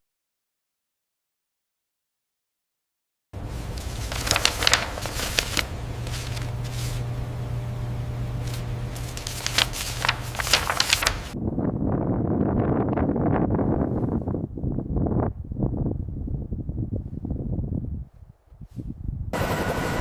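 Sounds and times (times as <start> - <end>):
low hum: 3.4 - 17.0
rough wind-like rush: 11.3 - 19.4.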